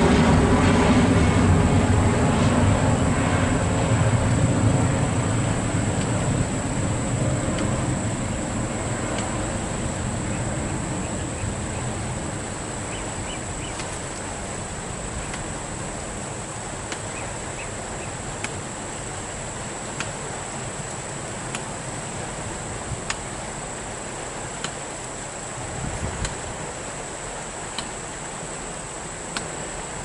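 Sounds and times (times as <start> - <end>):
airliner engine noise: 0.0 - 30.0
high insect drone: 0.0 - 30.0
faint ticks: 23.0 - 23.3, 29.3 - 29.6.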